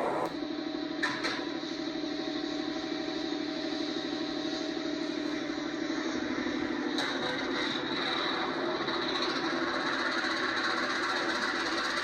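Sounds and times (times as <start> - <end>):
engine droning hum: 0.0 - 0.4.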